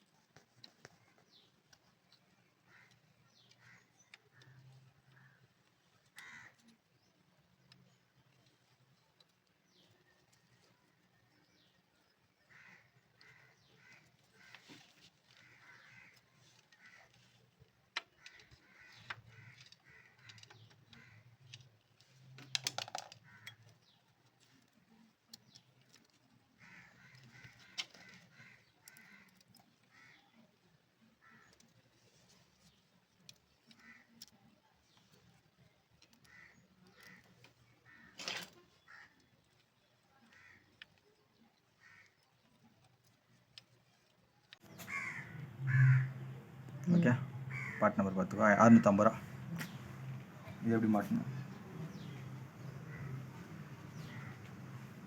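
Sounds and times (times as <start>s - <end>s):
faint bird calls: 0.6s - 8.3s, 9.7s - 24.0s, 24.8s - 32.4s, 33.2s - 35.3s, 36.0s - 42.7s, 43.9s - 55.0s
bird calling harshly: 44.6s - 46.2s, 46.8s - 49.8s.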